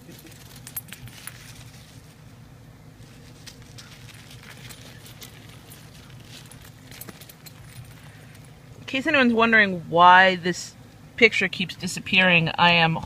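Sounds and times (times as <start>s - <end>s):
low steady hum: 0.0s - 13.0s
dog paws crunching on snow: 0.4s - 2.3s, 3.0s - 8.5s.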